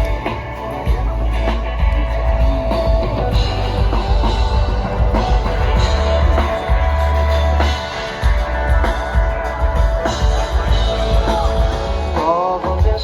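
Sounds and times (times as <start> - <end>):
rock band playing instrumental: 0.0 - 13.0.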